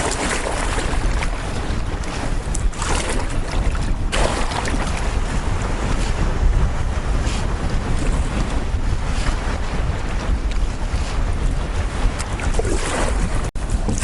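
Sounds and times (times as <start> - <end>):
waves splashing around canoe: 0.0 - 14.0
wind buffeting microphone: 0.0 - 14.0
sharp water slaps: 2.0 - 5.0.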